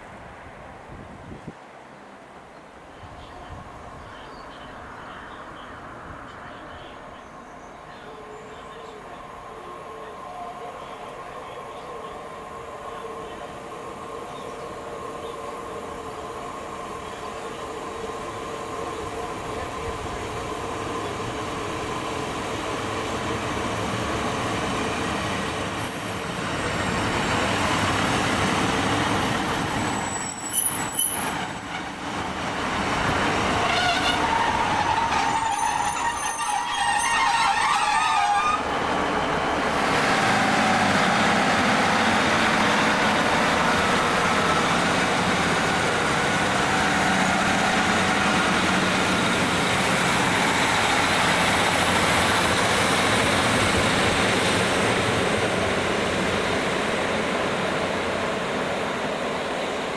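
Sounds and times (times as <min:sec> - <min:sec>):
train braking: 0:06.4 - 0:56.5
train engine running: 0:07.8 - 0:59.9
high-pitched brake squealing: 0:29.4 - 0:38.8.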